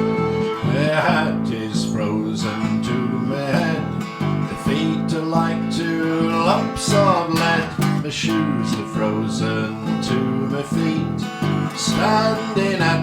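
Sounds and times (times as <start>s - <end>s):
sliding melody line: 0.0s - 3.8s
strummed acoustic guitar: 0.0s - 13.0s.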